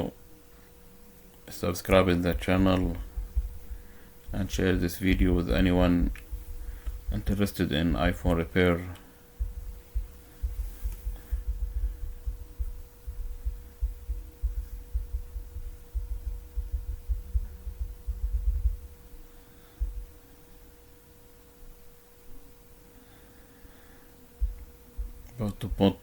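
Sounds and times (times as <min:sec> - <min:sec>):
faint steady hum: 0:00.0 - 0:26.0
low thumps and rumble: 0:01.9 - 0:08.5, 0:09.4 - 0:19.1, 0:19.8 - 0:20.2, 0:24.4 - 0:25.3.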